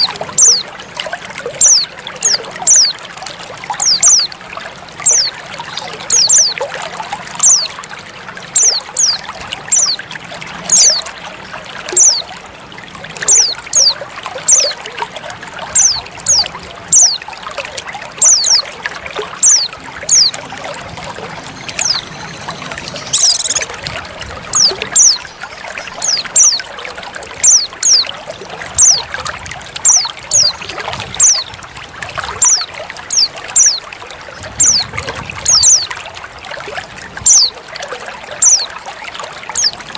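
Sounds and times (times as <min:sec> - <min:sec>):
bird chirping: 0:00.0 - 0:00.6, 0:01.6 - 0:03.0, 0:03.8 - 0:04.3, 0:05.0 - 0:05.3, 0:06.1 - 0:06.6, 0:07.4 - 0:07.7, 0:08.6 - 0:10.0, 0:10.7 - 0:11.0, 0:12.0 - 0:12.2, 0:13.3 - 0:14.8, 0:15.8 - 0:17.2, 0:18.2 - 0:18.7, 0:19.4 - 0:20.5, 0:21.4 - 0:23.8, 0:24.5 - 0:26.6, 0:27.4 - 0:28.0, 0:28.8 - 0:29.1, 0:29.8 - 0:30.6, 0:31.2 - 0:31.5, 0:32.4 - 0:33.8, 0:38.4 - 0:38.7, 0:39.5 - 0:39.8
water trickling: 0:00.0 - 0:39.9.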